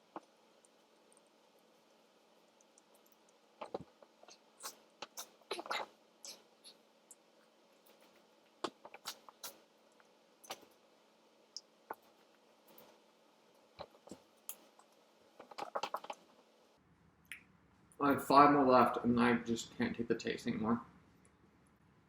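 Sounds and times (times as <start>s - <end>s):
person eating: 0.0s - 10.8s, 13.8s - 16.4s.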